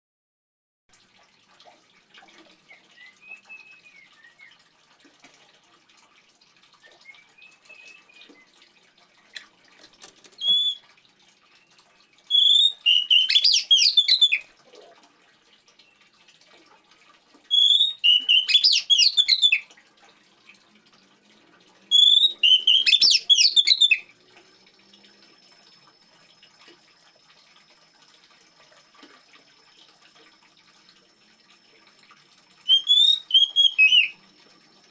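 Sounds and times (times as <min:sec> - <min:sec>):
water trickling: 0:00.9 - 0:34.9
songbird singing: 0:06.9 - 0:08.6, 0:10.4 - 0:10.8, 0:12.3 - 0:14.4, 0:17.5 - 0:19.6, 0:21.9 - 0:24.1, 0:32.7 - 0:34.2.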